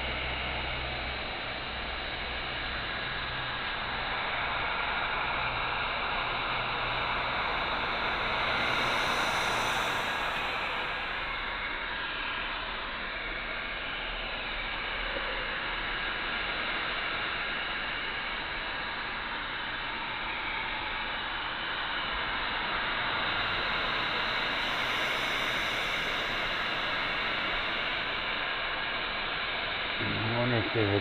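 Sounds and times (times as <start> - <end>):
heat gun hissing: 2.3 - 12.5, 21.9 - 31.0.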